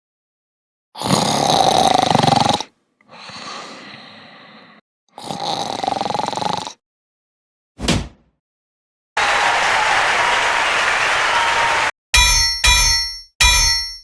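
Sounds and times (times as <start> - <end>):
loud rasping snores: 1.0 - 6.8
breathing out: 3.1 - 4.8.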